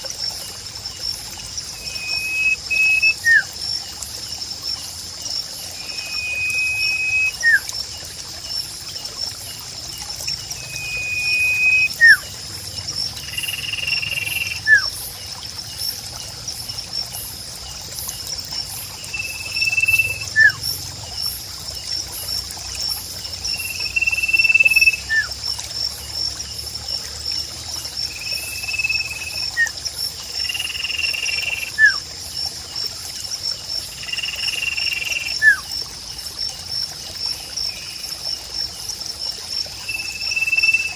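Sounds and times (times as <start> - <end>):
high insect trill: 0.0 - 40.9
trickling water: 0.0 - 40.9
bird whistling call: 1.8 - 3.5, 5.8 - 7.7, 10.6 - 12.2, 13.5 - 14.9, 19.2 - 20.6, 30.9 - 32.0, 34.7 - 35.6.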